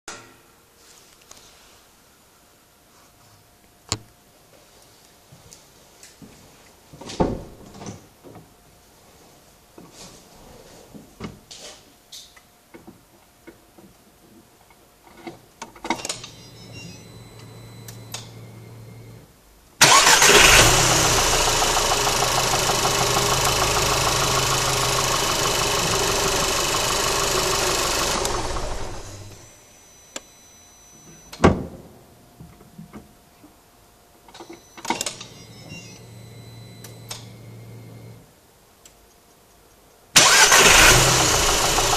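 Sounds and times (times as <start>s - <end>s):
car engine starting and idling: 19.8s - 29.5s, 40.2s - 41.9s.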